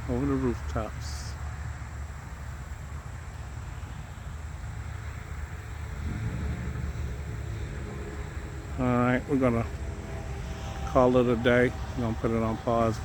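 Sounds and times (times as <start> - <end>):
vehicle engine hum: 0.0 - 13.0
wind rumble on microphone: 1.6 - 13.0.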